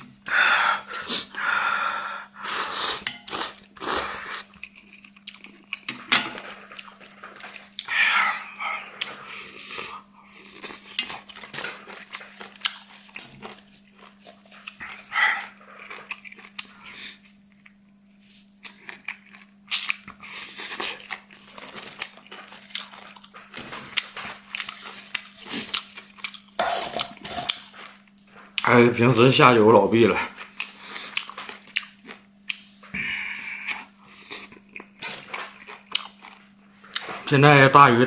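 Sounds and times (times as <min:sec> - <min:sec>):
steady low hum: 0:00.0 - 0:38.0
chewing and slurping noodles: 0:02.4 - 0:28.7.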